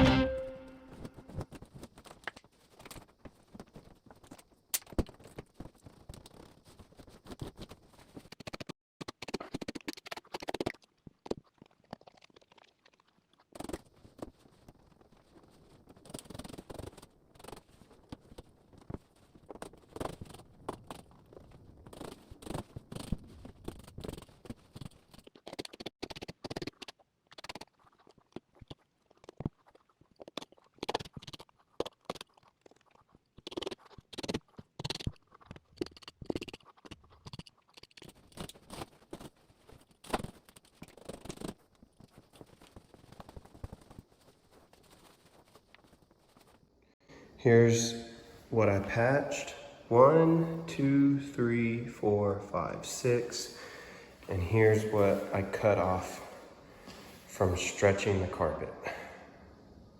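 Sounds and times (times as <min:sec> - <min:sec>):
scratching and scraping on carpet: 0:01.0 - 0:08.7, 0:13.6 - 0:26.3, 0:33.5 - 0:46.7.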